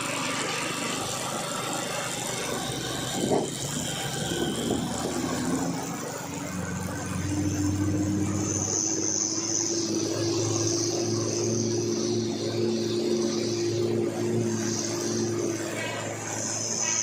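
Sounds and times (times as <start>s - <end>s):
high whine: 0.0s - 17.0s
truck diesel engine under load: 0.0s - 17.0s.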